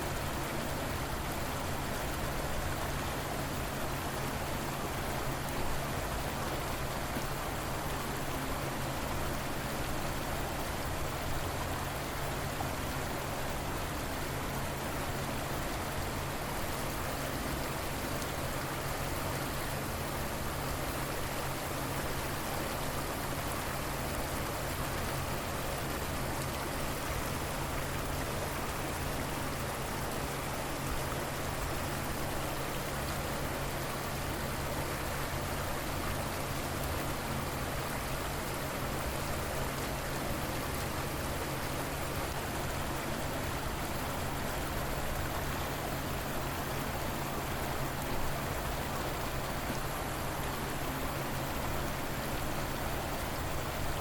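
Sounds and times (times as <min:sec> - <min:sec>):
river flowing: 0:00.0 - 0:54.0.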